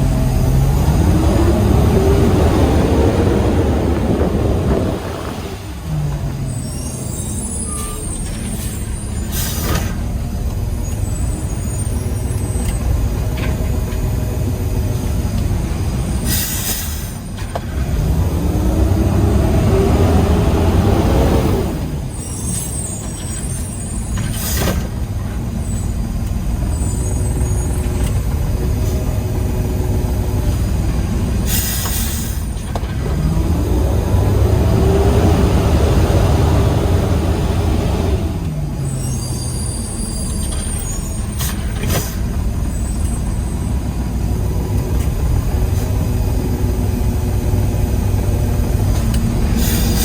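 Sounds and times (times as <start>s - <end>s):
truck diesel engine running: 0.0s - 50.0s
air brakes hissing: 5.6s - 10.2s, 16.0s - 17.6s, 21.7s - 29.2s, 30.5s - 32.8s, 36.6s - 44.0s, 49.0s - 50.0s.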